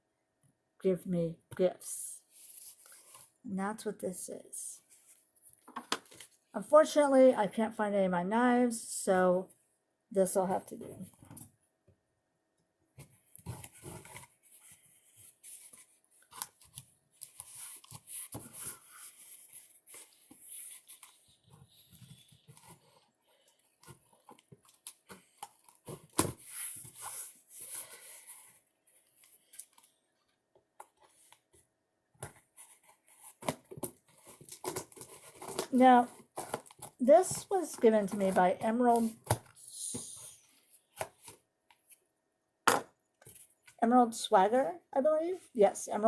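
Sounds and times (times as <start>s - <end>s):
packaging scraping and ripping: 32.8s - 37.5s.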